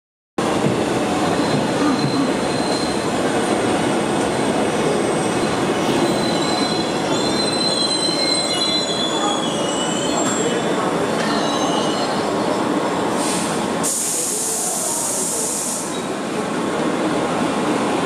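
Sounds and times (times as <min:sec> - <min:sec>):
high wheel squeals: 0:01.4 - 0:03.1, 0:05.9 - 0:12.3.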